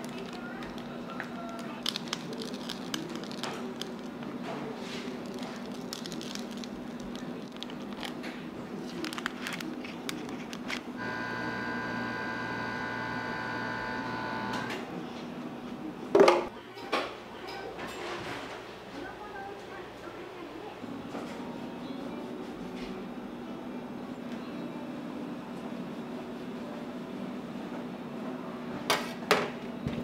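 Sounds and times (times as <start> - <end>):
kitchen machine running: 10.6 - 15.0.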